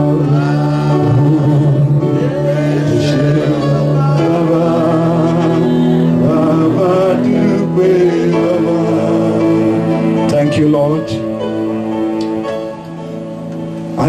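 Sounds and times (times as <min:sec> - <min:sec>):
person singing slow chorus: 0:00.0 - 0:10.5
long held chords: 0:00.0 - 0:14.0.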